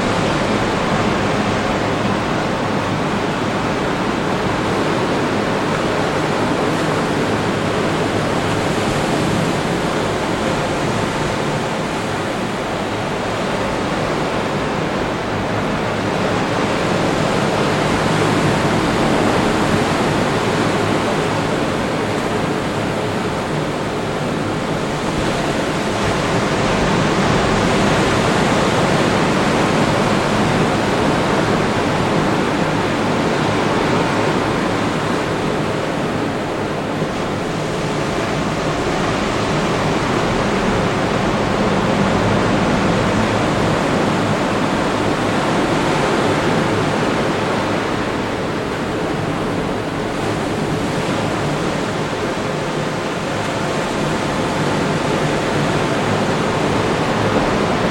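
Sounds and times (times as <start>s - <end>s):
ocean surf breaking: 0.0s - 57.9s.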